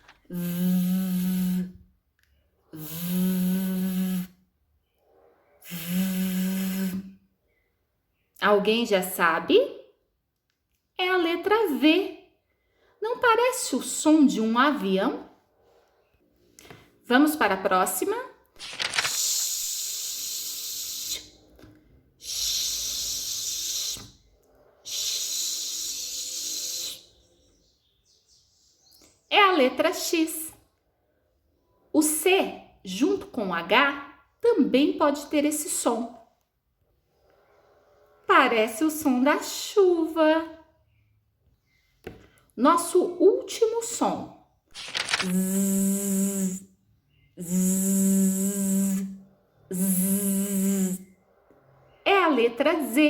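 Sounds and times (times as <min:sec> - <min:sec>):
woman making buzzing v sound: 0:00.3 - 0:01.8, 0:02.8 - 0:04.4, 0:05.7 - 0:07.2, 0:44.9 - 0:46.7, 0:47.4 - 0:51.0.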